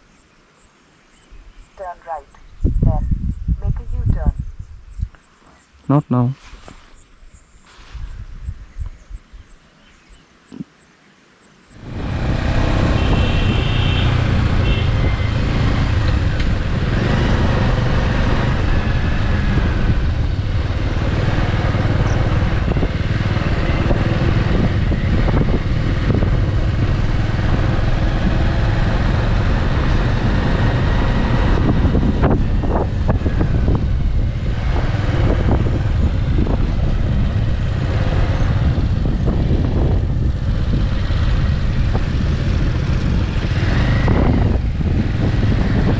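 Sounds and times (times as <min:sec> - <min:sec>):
wind rush on microphone: 0:02.4 - 0:05.2, 0:06.6 - 0:09.6, 0:11.8 - 0:45.9
motorcycle engine running: 0:11.8 - 0:45.9.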